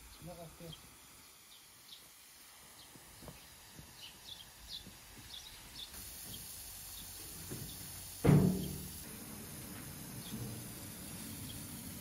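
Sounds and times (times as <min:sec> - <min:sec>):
small birds chirping: 0:00.0 - 0:08.0, 0:10.1 - 0:12.0
faint steady hiss: 0:00.0 - 0:12.0
soft knocks: 0:07.5 - 0:08.8.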